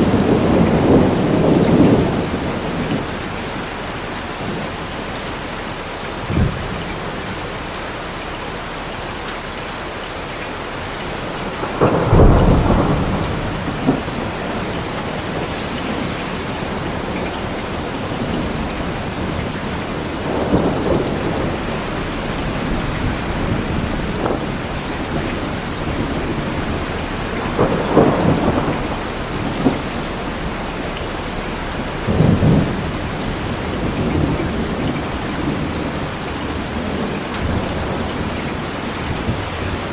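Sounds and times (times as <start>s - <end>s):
thunder rumbling: 0.0s - 8.0s, 10.7s - 39.9s
steady rain falling: 0.0s - 39.9s.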